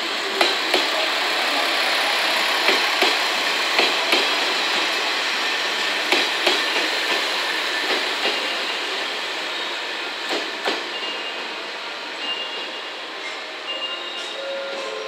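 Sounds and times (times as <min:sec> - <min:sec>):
railcar rolling noise: 0:00.0 - 0:15.0.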